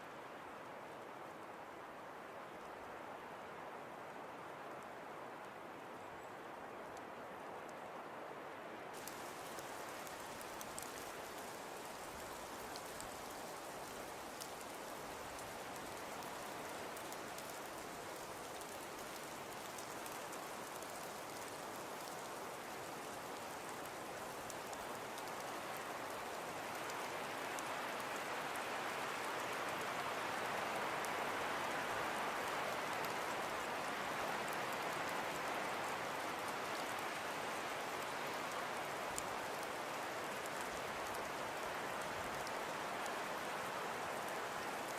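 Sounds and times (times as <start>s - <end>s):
wood fire crackling and popping: 9.0s - 27.1s.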